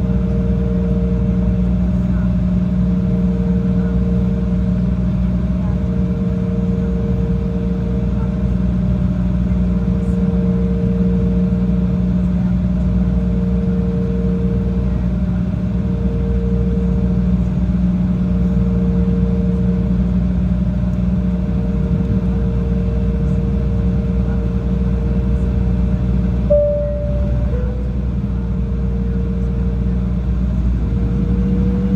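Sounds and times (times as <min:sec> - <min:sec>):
jet engines droning in cabin: 0:00.0 - 0:31.9
steady engine tones: 0:21.1 - 0:31.9.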